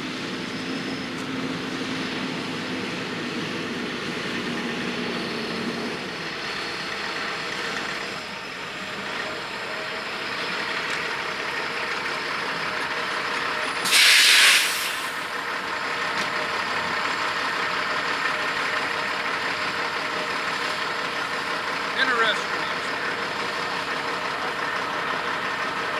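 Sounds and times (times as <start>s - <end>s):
truck engine running: 0.0s - 25.9s
air brakes hissing: 13.7s - 15.4s.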